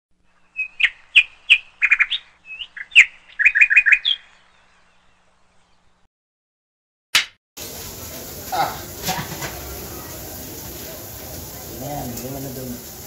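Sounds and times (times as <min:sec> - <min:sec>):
bird chirping and whistling: 0:00.4 - 0:04.6.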